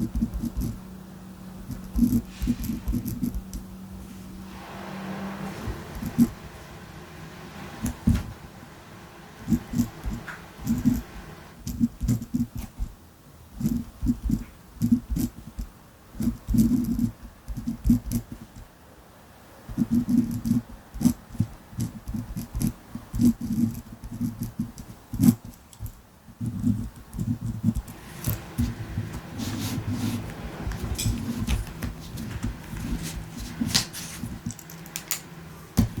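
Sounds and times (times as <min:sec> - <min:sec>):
ballpoint pen writing on paper: 0:00.0 - 0:00.8, 0:01.6 - 0:03.6, 0:13.6 - 0:15.6, 0:16.2 - 0:18.5, 0:19.7 - 0:25.6, 0:26.4 - 0:28.8.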